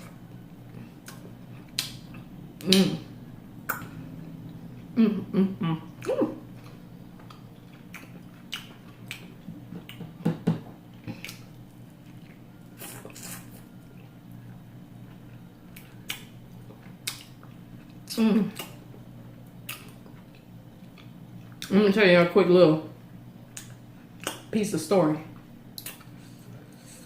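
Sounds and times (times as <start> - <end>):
close chewing and mouth smacks: 0.0 - 2.8, 5.9 - 10.2, 10.9 - 21.7, 23.5 - 24.5, 25.3 - 26.7
steady low hum: 0.0 - 27.0.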